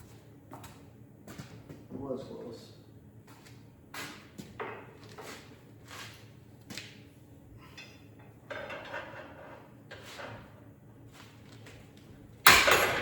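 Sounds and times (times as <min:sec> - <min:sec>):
metal parts and tools clanking: 0:07.8 - 0:10.4, 0:12.4 - 0:13.0.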